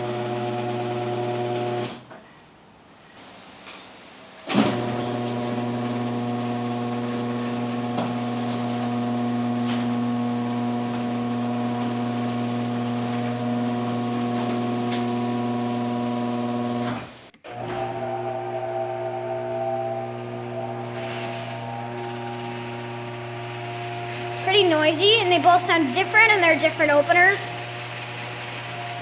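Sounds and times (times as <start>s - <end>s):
garage door opener motor humming: 17.4s - 29.0s.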